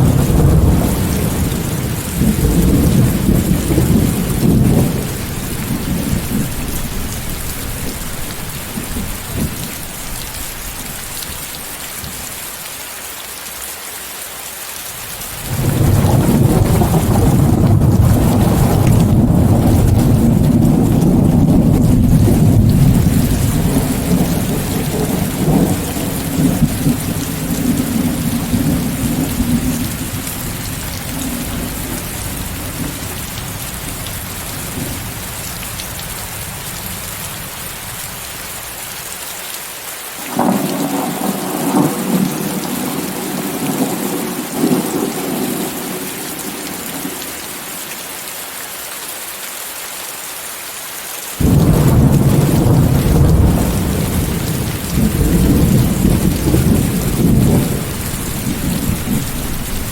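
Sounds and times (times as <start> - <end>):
rolling thunder: 0.0 - 9.7, 15.5 - 35.2, 40.3 - 47.3, 51.4 - 59.9
steady rain: 0.0 - 59.9.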